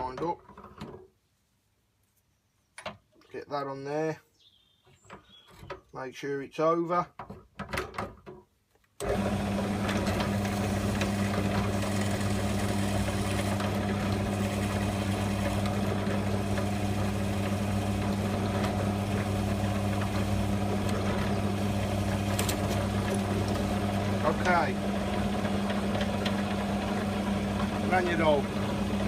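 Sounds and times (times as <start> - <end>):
drill press motor humming: 9.0 - 29.0.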